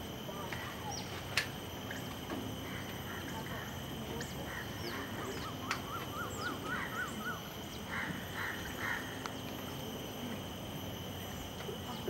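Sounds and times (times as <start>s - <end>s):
steady high drone: 0.0s - 12.0s
bird calling: 2.6s - 9.4s.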